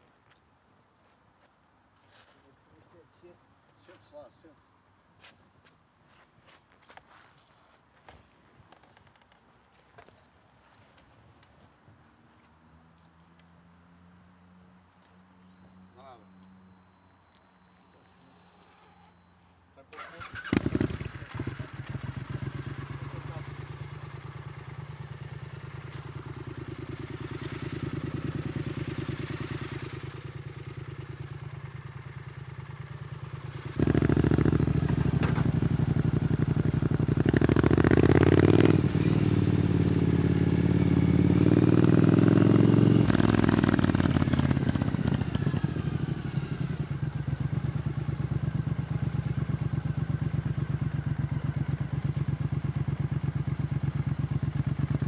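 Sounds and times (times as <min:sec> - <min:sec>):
motorcycle engine running: 0:20.3 - 0:55.0.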